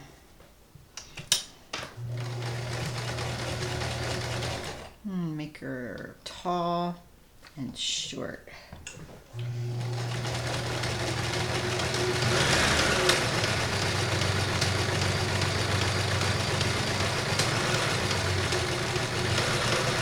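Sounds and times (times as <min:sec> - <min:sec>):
sewing machine motor humming: 0:02.0 - 0:04.9, 0:09.4 - 0:20.0
sewing needle mechanism clattering: 0:09.8 - 0:20.0.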